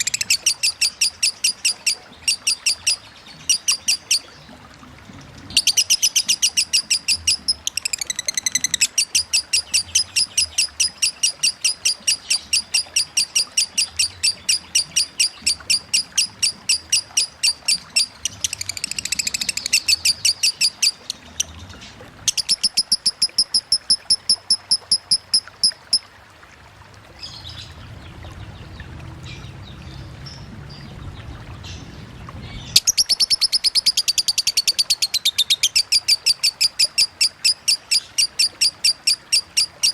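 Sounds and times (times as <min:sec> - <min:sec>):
running water: 0:00.0 - 0:39.9
bird rapid high chirps: 0:32.7 - 0:39.9.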